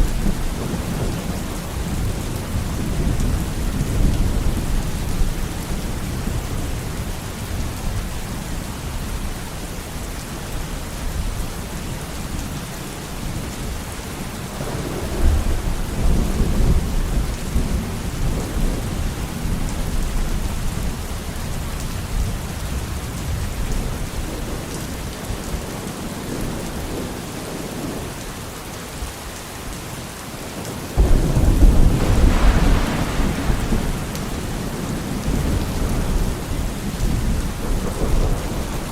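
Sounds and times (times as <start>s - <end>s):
steady rain falling: 0.0s - 38.9s
rolling thunder: 14.5s - 21.0s, 31.0s - 38.9s.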